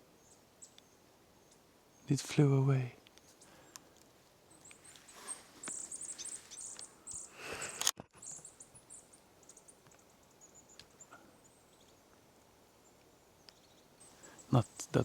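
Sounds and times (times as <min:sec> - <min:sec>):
songbird chirping and trilling: 0:00.0 - 0:07.5, 0:08.2 - 0:15.0.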